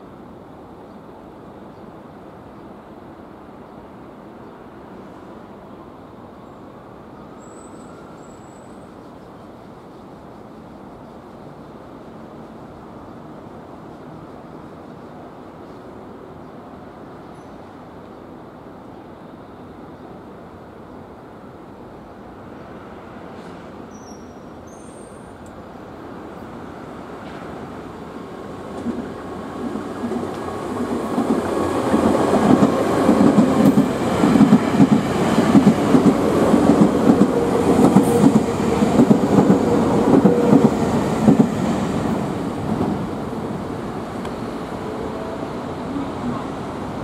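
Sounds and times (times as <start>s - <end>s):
train running tone: 28.1s - 47.0s.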